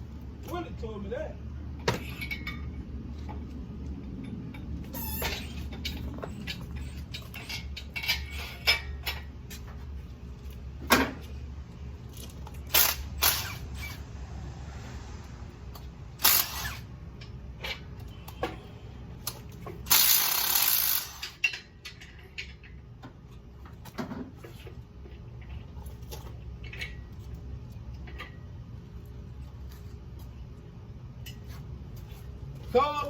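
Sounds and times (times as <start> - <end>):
hand tools clicking and knocking: 19.2 - 23.2.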